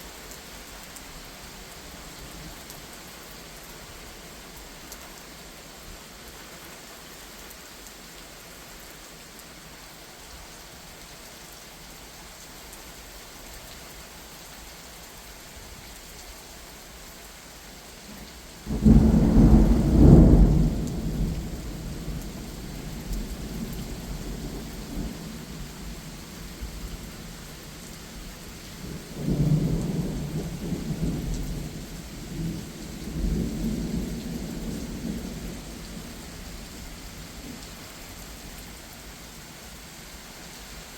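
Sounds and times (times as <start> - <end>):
steady rain: 0.0 - 40.9
thunder rumbling: 18.7 - 25.5.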